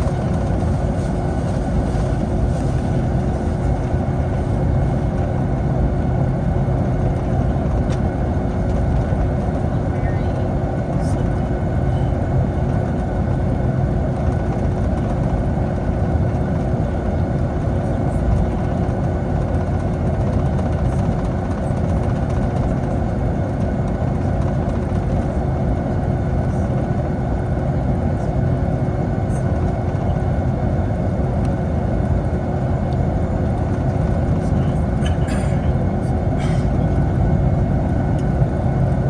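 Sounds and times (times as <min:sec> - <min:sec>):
airplane cabin engine noise: 0:00.0 - 0:39.0
constant engine whine: 0:00.0 - 0:39.0.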